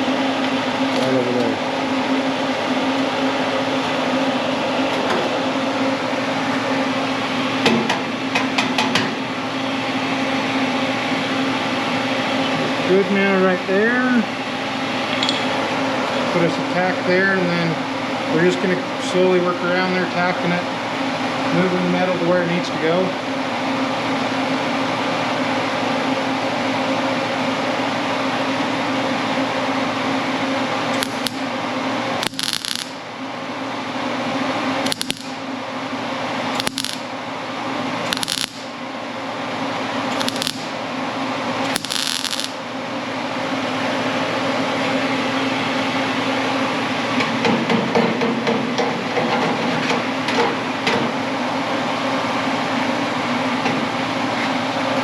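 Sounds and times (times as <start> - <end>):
shop hum: 0.0 - 47.9
welder hissing bursts: 30.9 - 31.4, 32.2 - 33.0, 34.9 - 35.4, 36.6 - 37.0, 38.1 - 38.7, 40.1 - 40.7, 41.7 - 42.6
welding crackling: 30.9 - 31.5, 32.2 - 33.1, 34.8 - 35.4, 36.5 - 37.1, 38.0 - 38.8, 40.1 - 40.8, 41.6 - 42.7.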